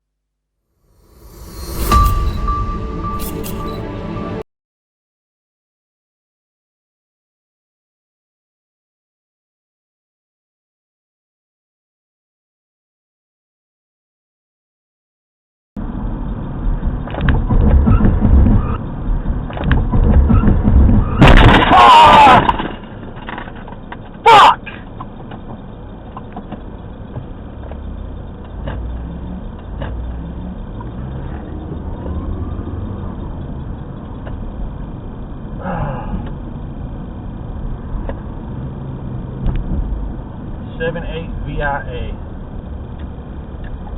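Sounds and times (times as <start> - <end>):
car road and engine noise: 0.8 - 4.4, 15.8 - 43.9
loud sudden crash: 0.9 - 4.4, 21.0 - 22.6
short sharp sound: 0.9 - 4.4.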